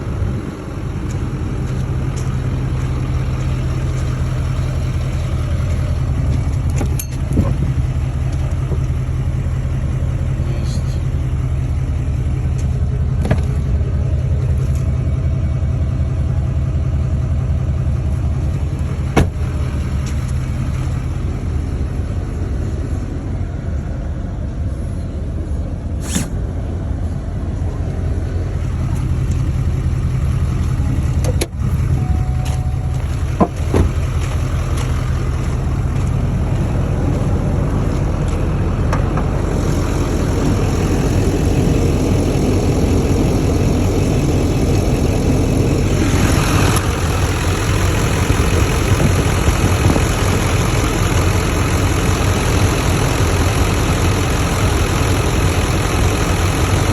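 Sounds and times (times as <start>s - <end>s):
diesel engine rumbling: 0.0s - 56.9s.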